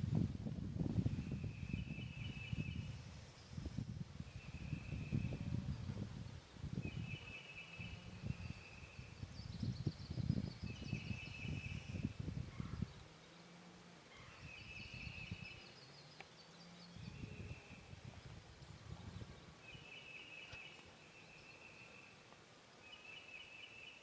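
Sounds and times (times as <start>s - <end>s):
low wind rumble: 0.0s - 13.1s, 16.8s - 20.0s.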